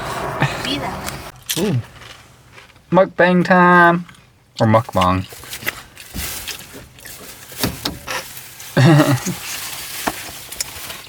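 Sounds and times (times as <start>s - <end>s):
rustling and clicks of handling: 4.9s - 11.0s.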